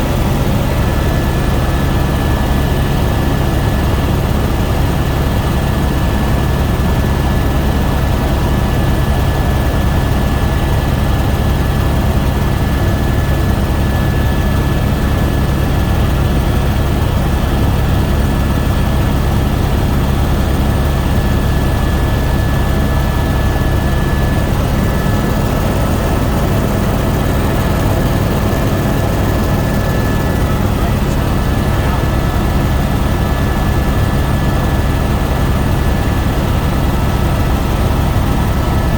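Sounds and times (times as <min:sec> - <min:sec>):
helicopter engine and rotor drone: 0:00.0 - 0:38.9
thin steady whine: 0:14.6 - 0:38.9.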